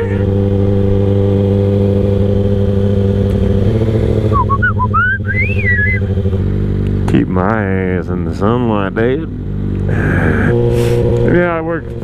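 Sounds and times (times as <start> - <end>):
motorcycle engine running: 0.0 - 12.0
high chirping whistles: 4.3 - 6.1.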